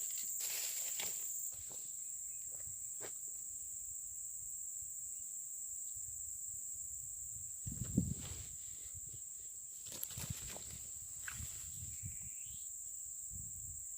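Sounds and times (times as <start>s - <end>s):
insects droning: 0.0s - 13.9s.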